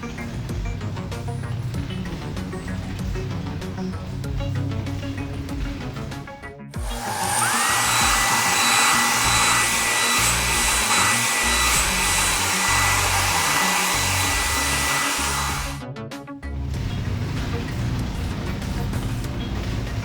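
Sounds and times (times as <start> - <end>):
background music: 0.0 - 20.0
high whine: 6.8 - 15.8
rushing hiss of blown air: 6.8 - 15.8.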